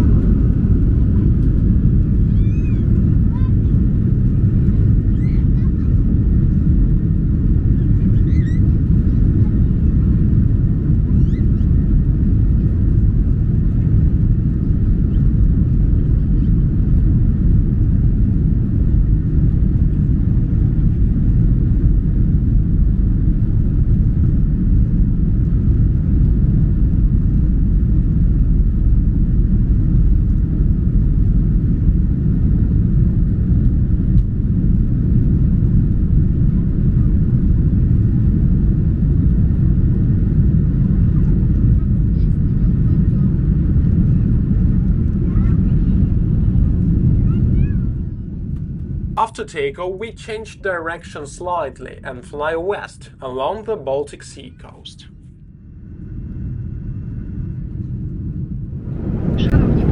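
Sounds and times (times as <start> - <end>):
aircraft engines rumbling in cabin: 0.0 - 59.9
rush of air and wheels: 55.8 - 59.9.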